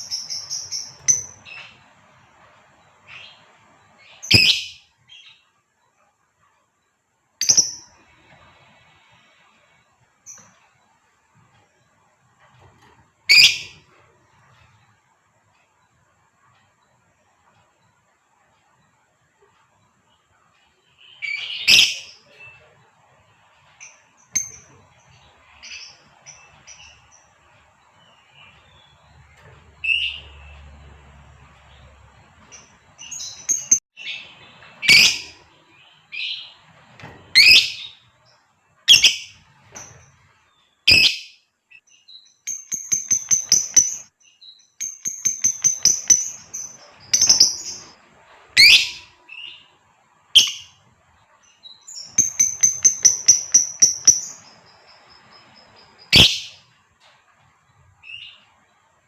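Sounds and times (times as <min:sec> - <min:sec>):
bird rapid high chattering: 0:42.5 - 0:44.0, 0:44.9 - 0:47.9, 0:52.1 - 0:54.6
bird shrill calls: 0:48.6 - 0:49.5.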